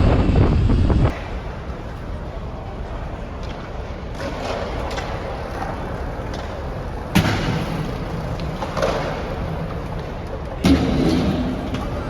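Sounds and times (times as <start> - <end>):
steady low rumble: 0.0 - 1.2.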